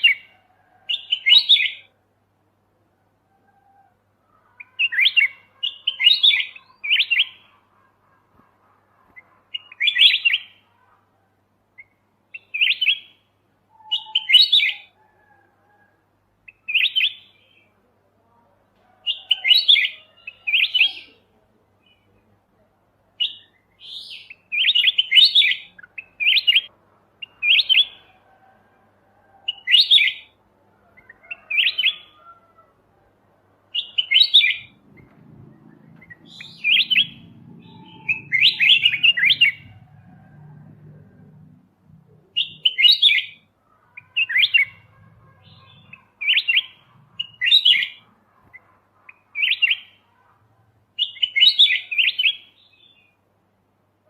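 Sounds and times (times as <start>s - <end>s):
bird chirping: 0.0s - 2.0s, 3.8s - 11.0s, 11.7s - 15.0s, 16.4s - 17.8s, 23.2s - 28.2s, 29.4s - 32.5s, 33.7s - 39.9s, 41.0s - 50.3s, 51.0s - 53.2s.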